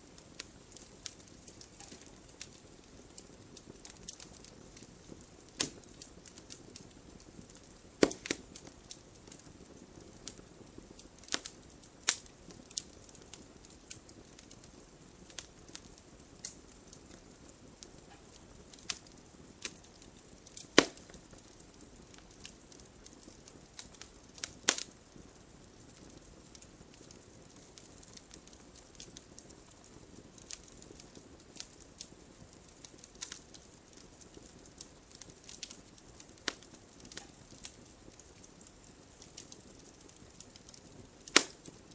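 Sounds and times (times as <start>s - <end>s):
faint steady hiss: 0.0s - 41.9s
wood fire crackling: 0.0s - 41.9s.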